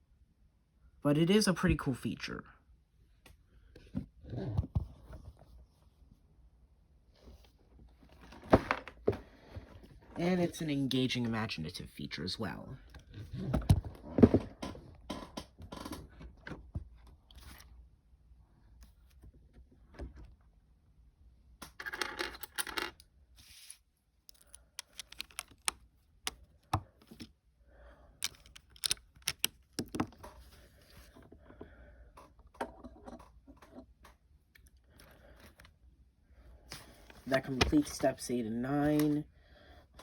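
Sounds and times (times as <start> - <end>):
plastic building bricks clicking: 24.3 - 27.3, 28.2 - 30.4.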